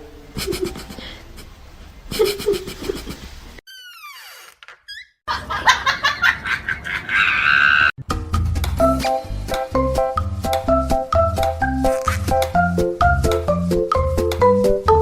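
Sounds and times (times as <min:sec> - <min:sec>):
people laughing: 0:05.3 - 0:07.9.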